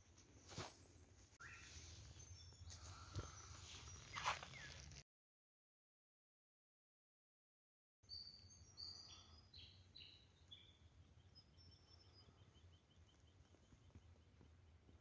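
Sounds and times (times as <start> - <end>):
birdsong whistles and chirps: 1.4 - 4.9, 8.1 - 14.5.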